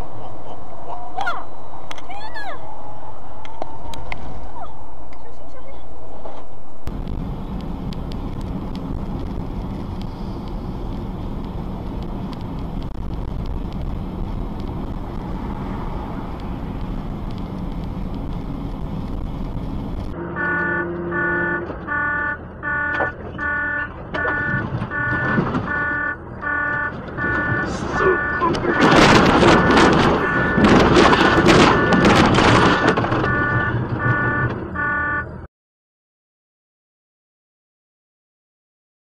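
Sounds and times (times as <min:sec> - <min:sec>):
traffic noise: 0:00.0 - 0:35.5
vehicle engine and road rumble: 0:00.0 - 0:35.5
pulsing electronic alarm tone: 0:20.2 - 0:30.7, 0:31.6 - 0:35.3.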